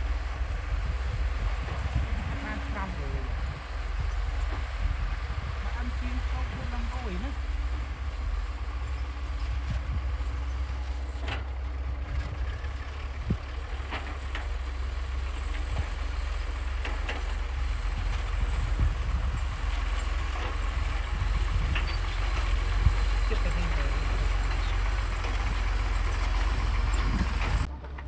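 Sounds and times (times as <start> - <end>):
diesel machinery rumbling: 0.0 - 28.0.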